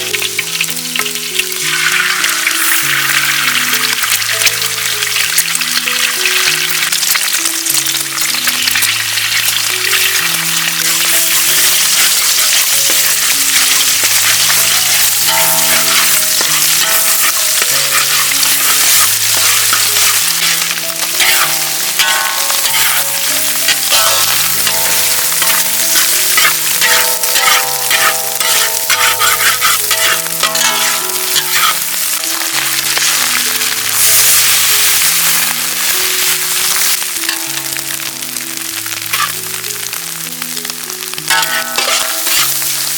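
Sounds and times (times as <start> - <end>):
food frying and sizzling: 0.0 - 42.9
soft background music: 0.0 - 42.9
spatula scraping a pan: 11.0 - 33.3, 41.3 - 42.9.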